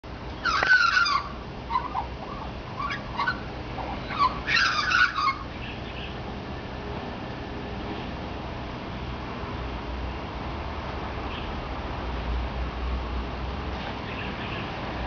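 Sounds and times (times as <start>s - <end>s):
magpie singing: 0.4s - 6.2s.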